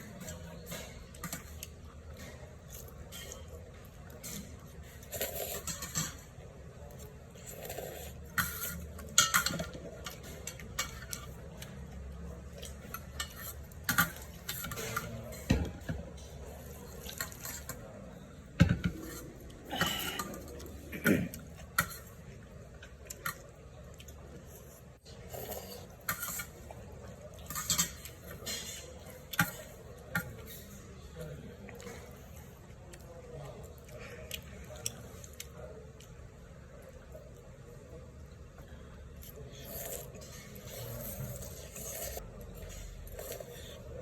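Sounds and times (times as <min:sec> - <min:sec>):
utensils clinking against a bowl: 0:00.0 - 0:32.5.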